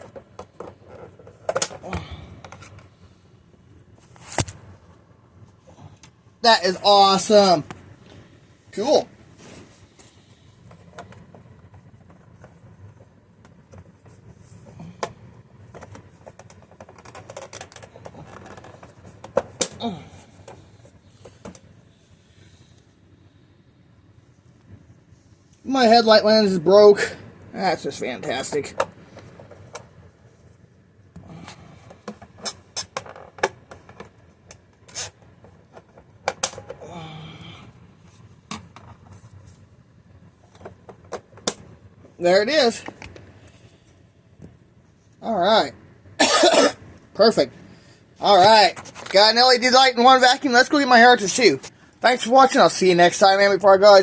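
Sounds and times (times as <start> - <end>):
low steady hum: 0.0 - 54.0
plastic parts clicking and tapping: 15.7 - 19.8.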